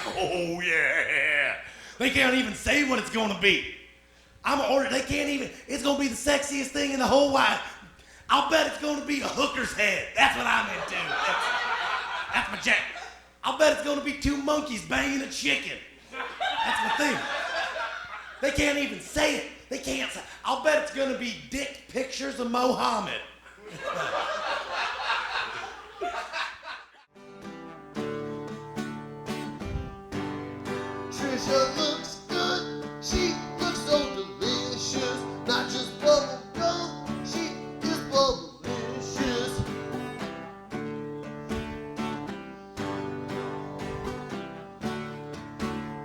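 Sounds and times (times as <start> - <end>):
audience laughing: 0.0 - 1.6, 10.3 - 13.3, 16.0 - 18.5, 23.5 - 27.1
strummed acoustic guitar music: 27.1 - 46.0.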